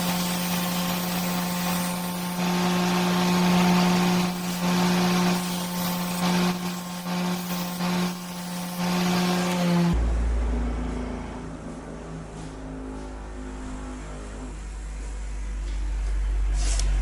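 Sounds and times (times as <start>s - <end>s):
power tool motor grinding: 0.0s - 10.0s
deep low rumble: 10.0s - 17.0s.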